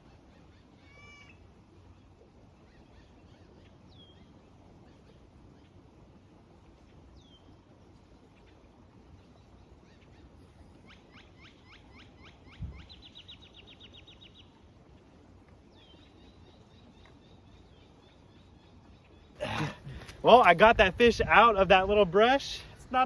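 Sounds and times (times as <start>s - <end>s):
small birds calling: 15.6s - 20.8s.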